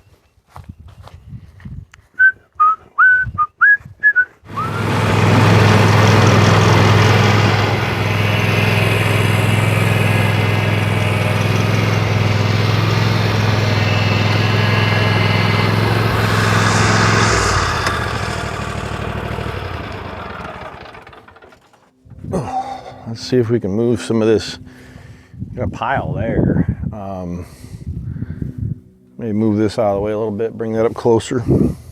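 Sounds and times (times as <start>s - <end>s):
small engine running: 4.5s - 22.3s.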